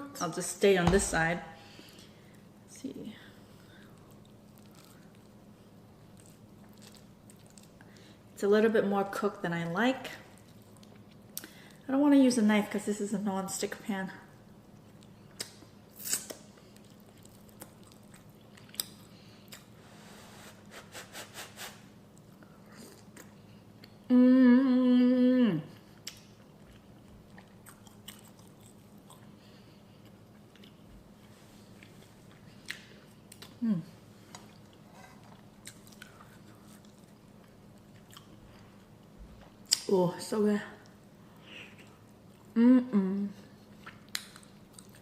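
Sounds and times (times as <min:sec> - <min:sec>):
person chewing food: 0:03.6 - 0:08.2, 0:10.3 - 0:11.8, 0:14.7 - 0:19.8, 0:25.7 - 0:33.6, 0:34.2 - 0:39.8, 0:43.5 - 0:45.0
person humming mmm: 0:24.0 - 0:25.8, 0:33.6 - 0:34.0, 0:42.5 - 0:43.6.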